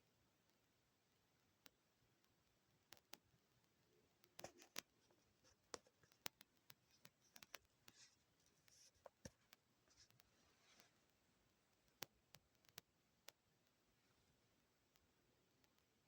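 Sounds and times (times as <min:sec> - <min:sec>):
faint handling clicks and taps: 0:04.2 - 0:11.2.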